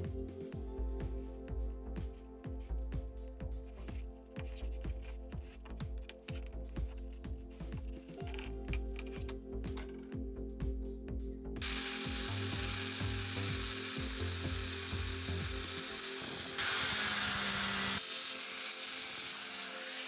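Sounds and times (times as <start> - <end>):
background music with a beat: 0.0 - 16.6
harsh tool noise on metal: 11.6 - 20.0.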